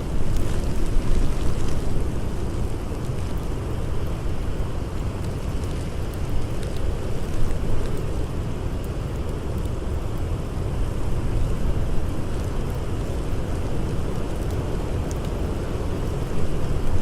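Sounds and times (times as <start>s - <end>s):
blizzard wind rumbling: 0.0s - 17.0s
campfire crackling: 0.0s - 17.0s.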